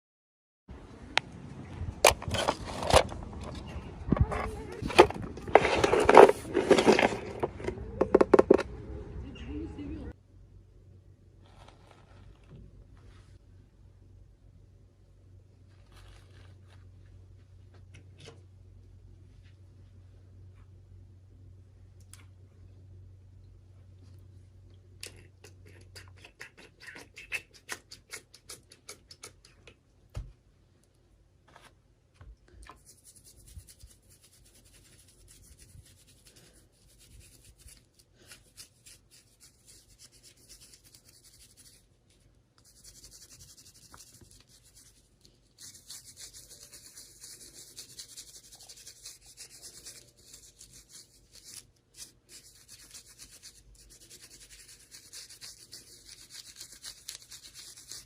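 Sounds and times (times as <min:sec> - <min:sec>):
rubbing and scratching rustle: 0:02.3 - 0:07.6, 0:11.4 - 0:13.4, 0:15.6 - 0:17.5, 0:32.7 - 0:58.0.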